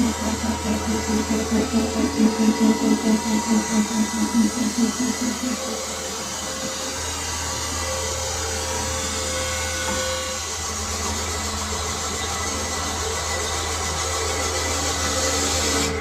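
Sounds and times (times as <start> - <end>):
lathe running: 0.0 - 9.2.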